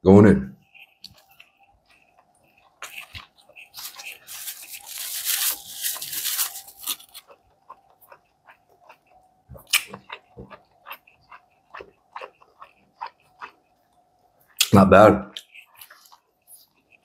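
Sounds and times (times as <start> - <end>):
person chewing crunchy food: 0.6 - 14.7, 15.3 - 17.0
mouth clicks and smacks: 6.8 - 13.6, 14.6 - 17.0.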